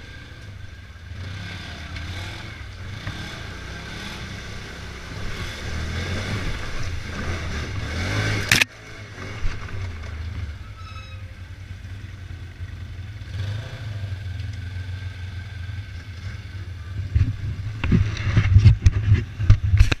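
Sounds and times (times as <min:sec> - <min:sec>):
vehicle engine under load: 0:00.0 - 0:20.0
heavy low thumps and buffeting: 0:16.8 - 0:19.8.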